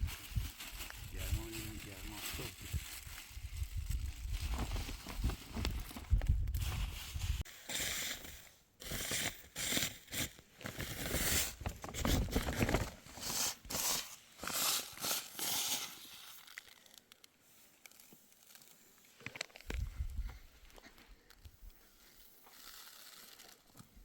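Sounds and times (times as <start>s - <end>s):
rustling and crackling: 0.0s - 7.5s.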